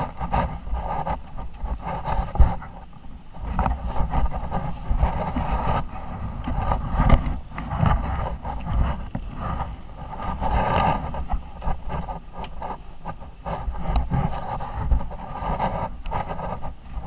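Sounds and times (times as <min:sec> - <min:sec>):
wind buffeting on microphone: 0:00.0 - 0:17.0.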